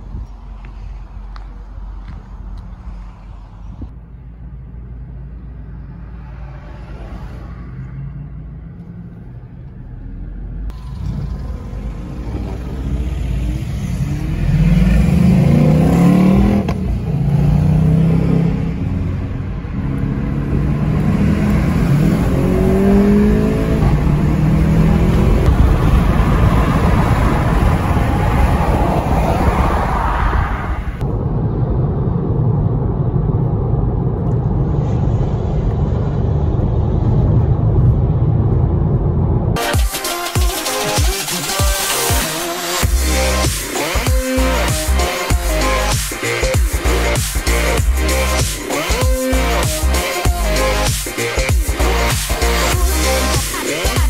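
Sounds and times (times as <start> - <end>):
road and wind noise: 0.0 - 39.8, 40.6 - 54.0
car engine accelerating: 8.8 - 39.6.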